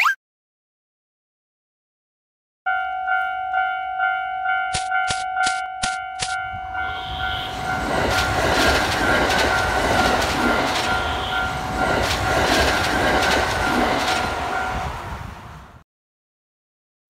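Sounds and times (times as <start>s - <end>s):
crossing warning bell ringing: 2.7s - 15.3s
train wheels clacking over rail joints: 7.9s - 14.5s.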